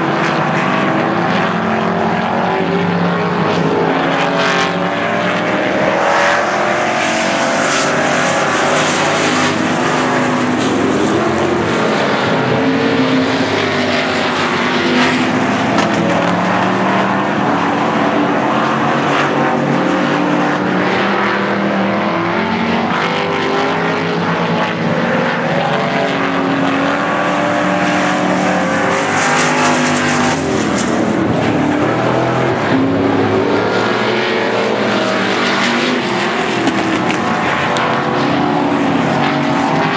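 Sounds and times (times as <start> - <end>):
race car engines roaring: 0.0 - 39.9.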